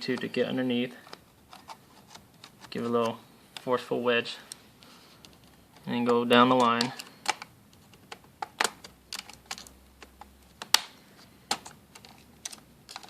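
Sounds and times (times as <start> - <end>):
sharp plastic clicks: 5.2 - 13.0.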